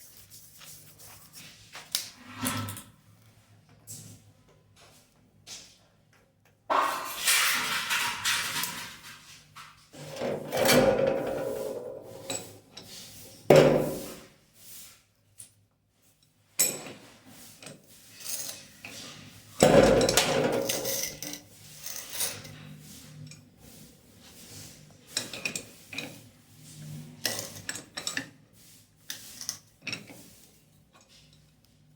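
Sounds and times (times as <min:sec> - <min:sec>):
tools knocking and scraping: 0:06.7 - 0:09.3, 0:09.9 - 0:14.2, 0:16.6 - 0:23.5, 0:25.0 - 0:28.4.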